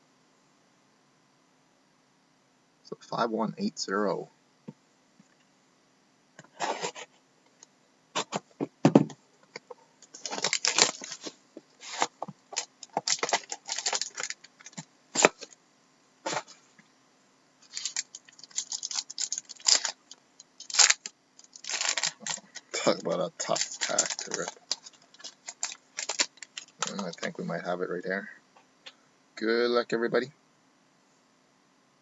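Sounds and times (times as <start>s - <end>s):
wrapper crinkling and tearing: 10.1s - 15.6s, 17.6s - 27.4s.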